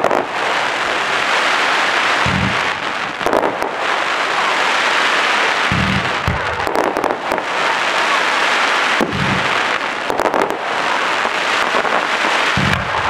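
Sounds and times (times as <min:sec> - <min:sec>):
firework crackle: 0:00.0 - 0:13.0
low firework thuds: 0:02.2 - 0:03.8, 0:05.7 - 0:07.4, 0:09.0 - 0:10.6, 0:11.7 - 0:13.0
sharp firework bangs: 0:02.2 - 0:03.9, 0:05.6 - 0:08.1, 0:08.9 - 0:13.0.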